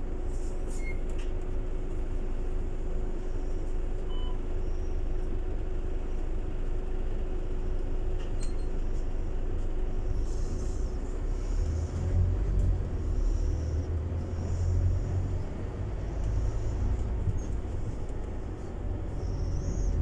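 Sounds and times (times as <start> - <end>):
bus engine drone: 0.0 - 20.0
short beep: 4.1 - 4.4.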